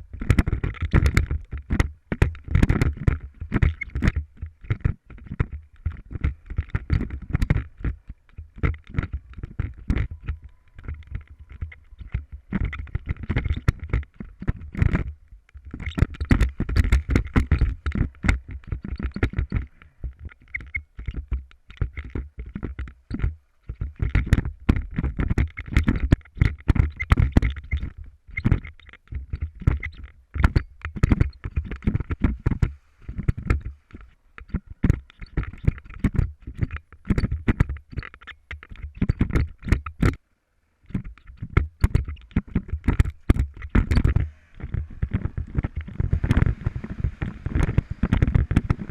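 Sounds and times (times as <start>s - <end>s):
knocks and rattles: 40.9s - 48.9s
motorcycle engine rumble: 40.9s - 48.9s
wind buffeting microphone: 41.4s - 48.9s.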